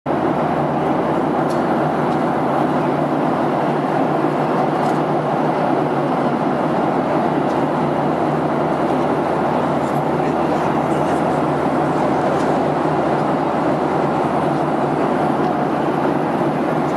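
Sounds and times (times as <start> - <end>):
jet engine cabin roar: 0.1 - 16.9.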